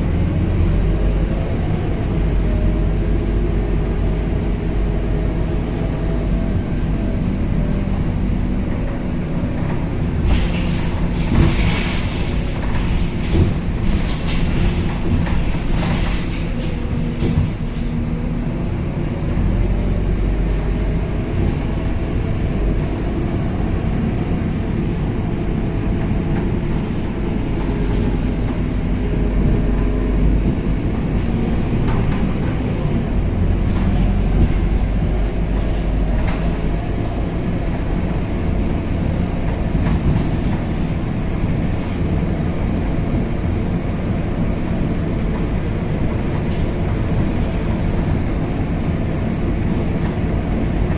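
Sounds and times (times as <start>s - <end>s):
bus engine and road noise: 0.0s - 50.9s.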